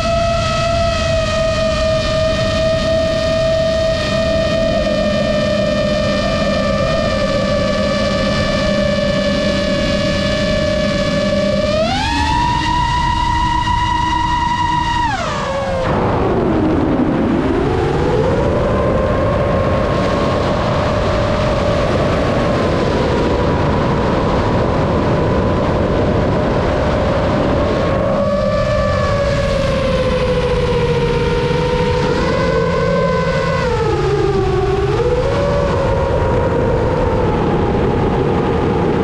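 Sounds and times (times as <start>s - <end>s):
model airplane motor whining: 0.0s - 15.9s, 27.8s - 36.8s
wind rush: 0.0s - 39.0s.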